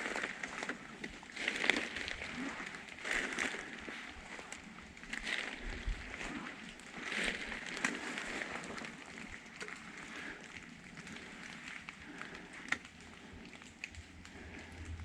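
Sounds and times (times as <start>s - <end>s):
twigs snapping: 0.0s - 4.0s, 7.0s - 15.0s
footsteps crunching through leaves: 0.0s - 9.0s.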